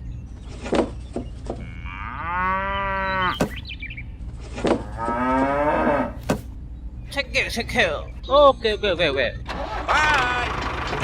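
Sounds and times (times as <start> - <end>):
drawn-out animal calls: 9.5 - 11.0.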